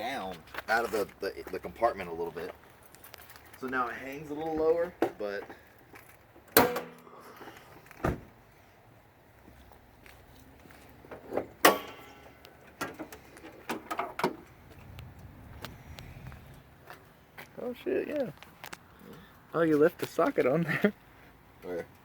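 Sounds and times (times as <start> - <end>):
sharp knocks and clunks: 6.4 - 7.1, 7.9 - 8.4, 11.1 - 14.4.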